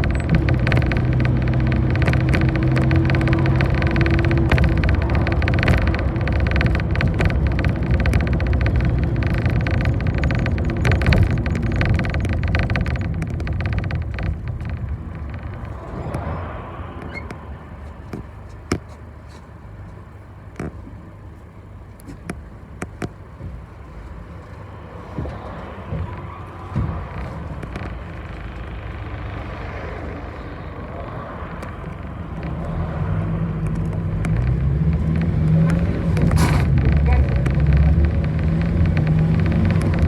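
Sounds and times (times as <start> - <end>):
clicks and knocks: 0.0 - 19.0, 31.2 - 40.0
bus engine and road noise: 0.0 - 40.0.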